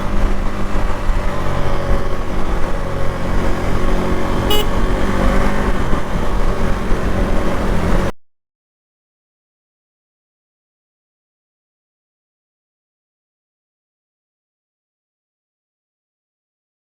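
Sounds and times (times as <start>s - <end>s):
motorcycle engine running: 0.0s - 8.1s
horn toot: 4.4s - 4.9s.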